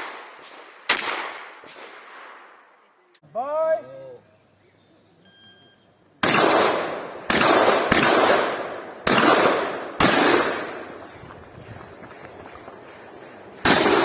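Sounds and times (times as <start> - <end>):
shotgun shots with echo: 0.0 - 2.3, 6.2 - 11.2, 13.6 - 14.0.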